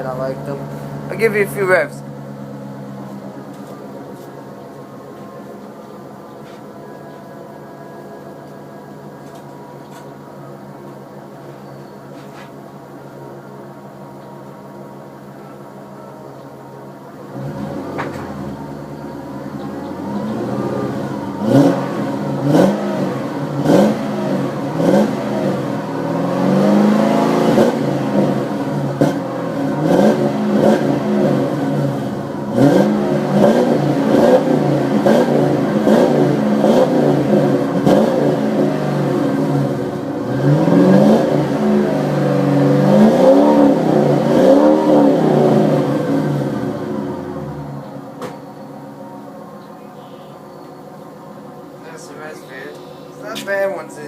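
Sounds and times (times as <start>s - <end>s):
car engine revving: 0.0s - 6.2s, 17.0s - 54.0s.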